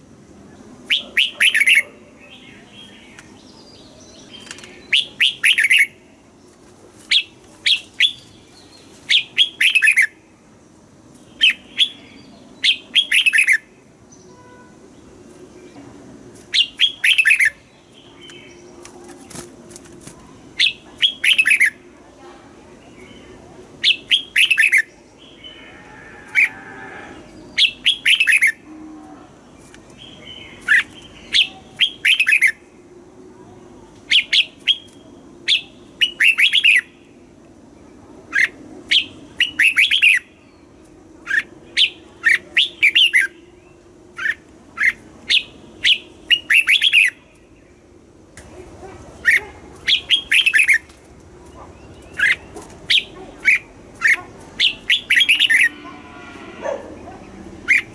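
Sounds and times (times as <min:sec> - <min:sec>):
bulbul singing: 0:51.5 - 0:57.9.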